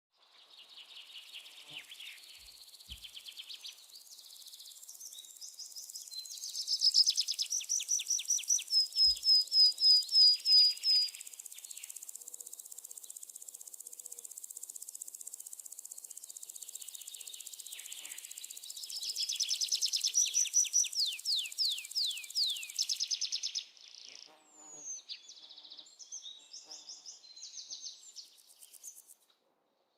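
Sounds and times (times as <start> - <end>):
high insect drone: 10.7 - 23.2.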